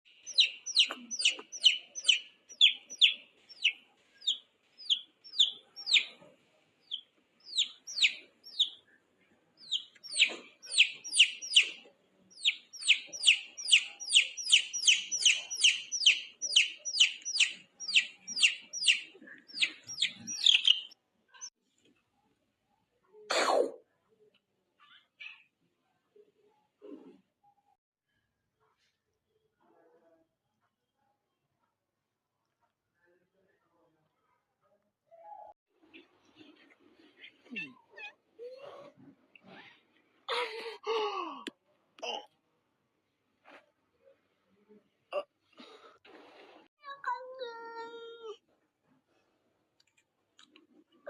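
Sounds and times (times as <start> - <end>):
small animal chirping cries: 0.2 - 6.2, 6.8 - 8.8, 9.6 - 21.0.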